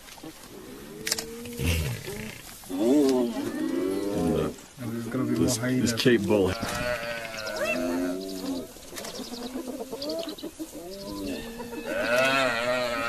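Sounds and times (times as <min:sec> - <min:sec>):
buffalo calf bawling: 0:00.7 - 0:08.7, 0:11.2 - 0:13.0.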